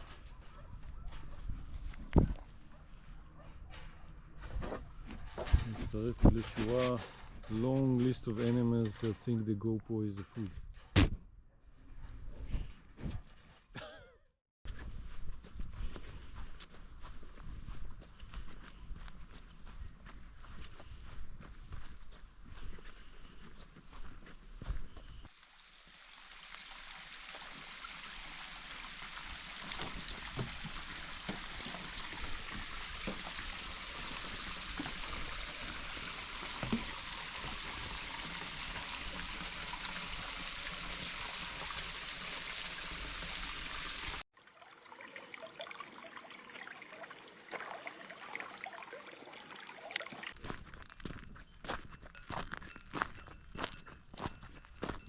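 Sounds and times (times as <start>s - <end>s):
running water rushing: 25.3s - 50.4s.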